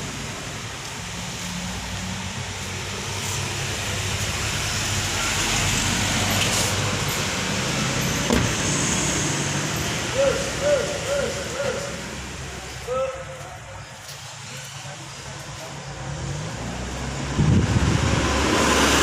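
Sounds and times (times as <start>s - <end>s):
diesel engine running: 1.6s - 12.8s.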